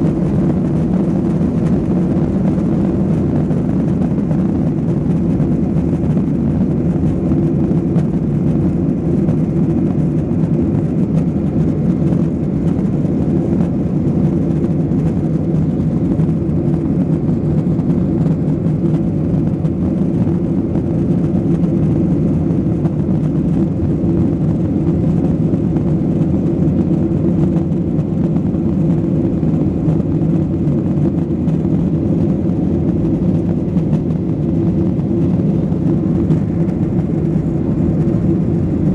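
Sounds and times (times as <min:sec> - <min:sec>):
jet engines roaring: 0:00.0 - 0:38.9.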